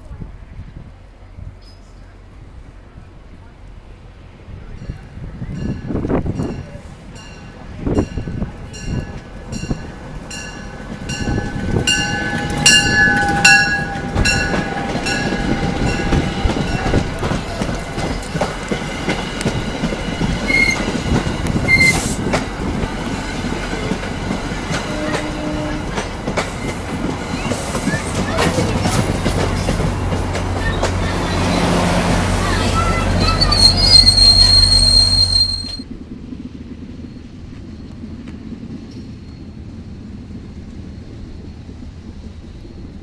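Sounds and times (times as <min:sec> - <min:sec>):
train coaches rumbling over rail joints: 0:00.2 - 0:43.0
train bell ringing: 0:04.8 - 0:17.1, 0:33.2 - 0:35.8
wheel and brake squeals: 0:20.4 - 0:20.9, 0:21.6 - 0:22.2, 0:32.8 - 0:35.8.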